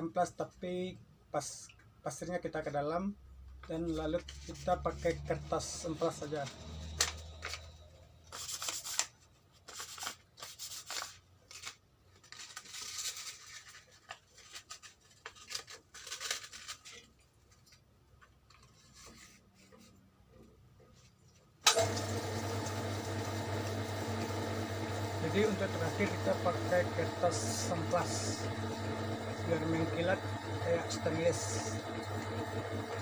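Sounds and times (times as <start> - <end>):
sandpaper scraping: 8.3 - 11.8, 18.7 - 20.0
power tool motor running: 21.7 - 33.0.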